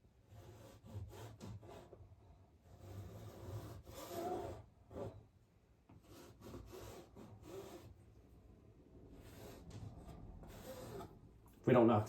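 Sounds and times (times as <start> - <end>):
palette knife scraping paint: 0.2 - 2.0, 2.6 - 5.3, 6.0 - 8.0, 9.2 - 11.2.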